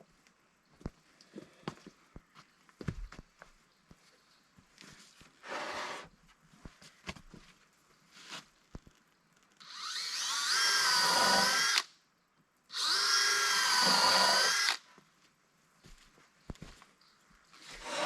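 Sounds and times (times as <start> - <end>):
power drill running: 9.6 - 11.9, 12.7 - 14.8, 17.8 - 18.0.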